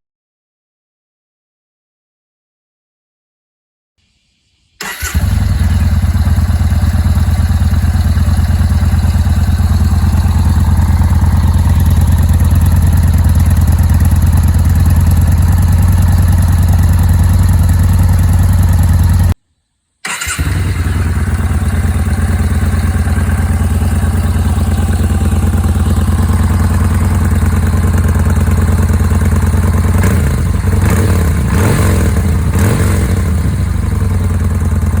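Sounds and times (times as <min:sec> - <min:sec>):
motorcycle engine idling: 0:04.8 - 0:19.4, 0:20.2 - 0:35.0.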